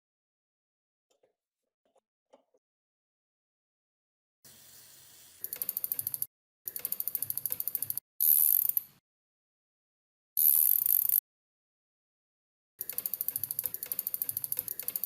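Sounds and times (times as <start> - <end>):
rapid ratchet-like metal clicking: 5.4 - 9.0, 10.4 - 11.2, 12.8 - 15.0.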